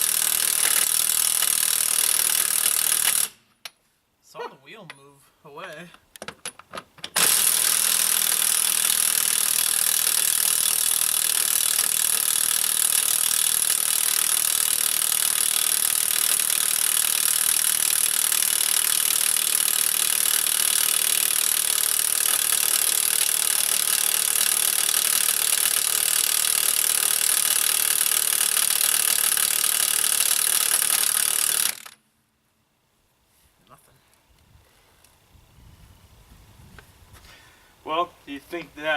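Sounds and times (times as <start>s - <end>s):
power tool motor with high hiss: 0.0s - 3.4s, 7.2s - 32.0s.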